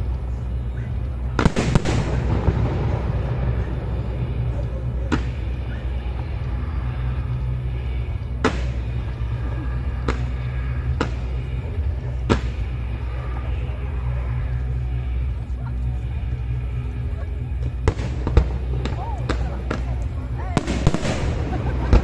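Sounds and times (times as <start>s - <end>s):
steady low rumble: 0.0s - 22.0s
fireworks bangs: 1.4s - 5.7s, 8.3s - 13.2s, 17.8s - 22.0s.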